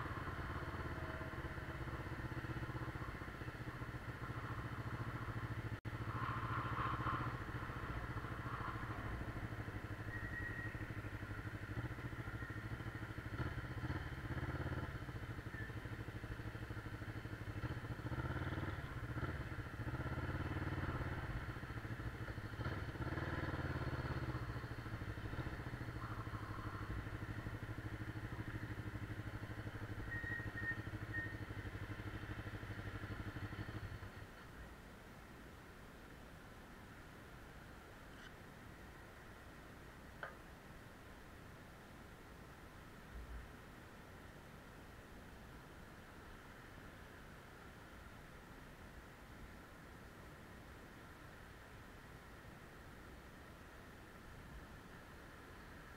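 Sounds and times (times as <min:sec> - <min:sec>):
motorcycle engine running: 0:00.0 - 0:34.6.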